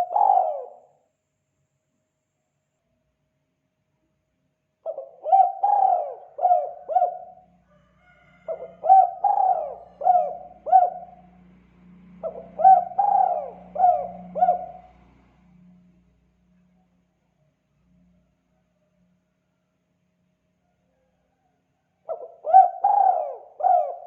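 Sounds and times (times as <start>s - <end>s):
dove cooing: 0.0s - 1.0s, 4.8s - 7.6s, 8.4s - 11.4s, 12.2s - 15.0s, 22.1s - 24.0s.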